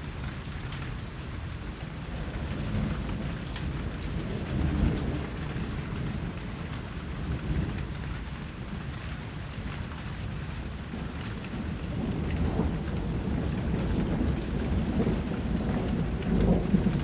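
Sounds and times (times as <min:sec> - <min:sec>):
steady rain falling: 0:00.0 - 0:17.0
distant thunder rumble: 0:02.0 - 0:08.5, 0:10.7 - 0:17.0.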